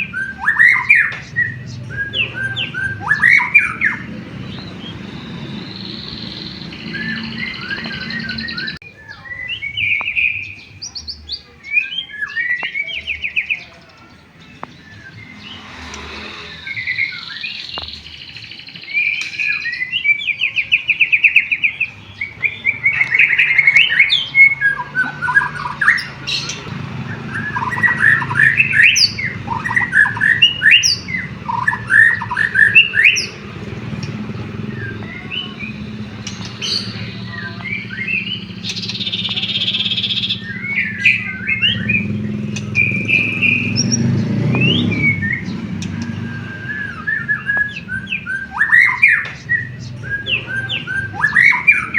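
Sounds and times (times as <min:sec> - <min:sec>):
songbird singing trills and whistles: 0:00.0 - 0:51.9.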